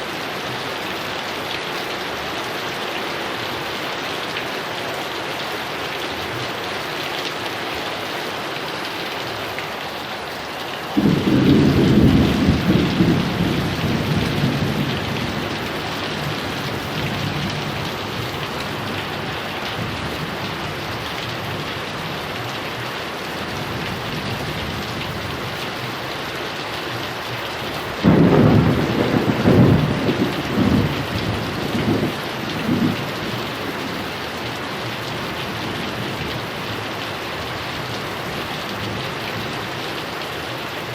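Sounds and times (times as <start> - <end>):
heavy rain: 0.0 - 40.9
thunder rolling: 11.0 - 19.0, 28.0 - 33.5.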